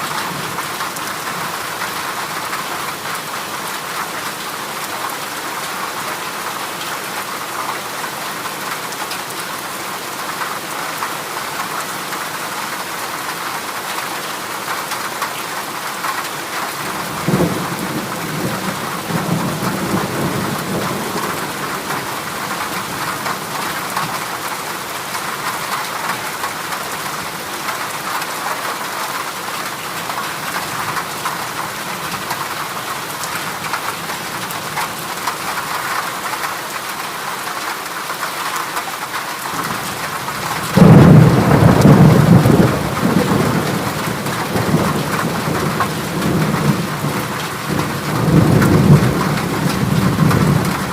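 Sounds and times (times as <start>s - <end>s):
heavy rain on a metal roof: 0.0s - 50.9s
thunder crack and rumbling: 39.6s - 50.9s.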